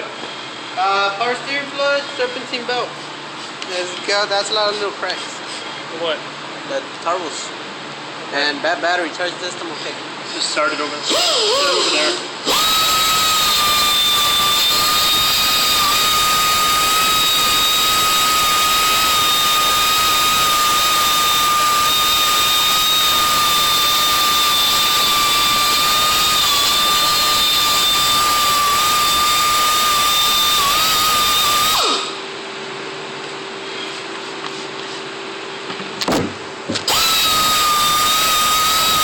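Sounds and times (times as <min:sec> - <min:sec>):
power tool spinning down: 0:11.1 - 0:32.2, 0:36.8 - 0:39.0
power tool whining: 0:11.1 - 0:32.2, 0:36.0 - 0:39.0.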